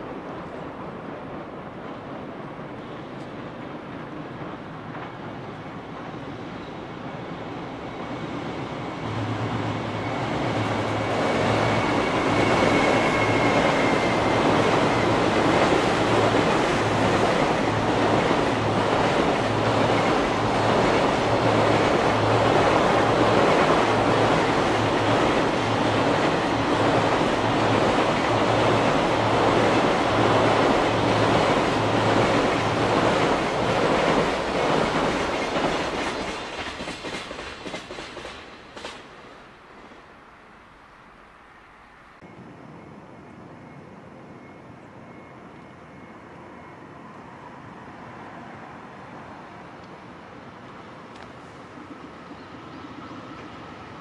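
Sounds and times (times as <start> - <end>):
train wheels clattering on bridge: 10.6 - 39.2
faint high whine: 40.0 - 48.4.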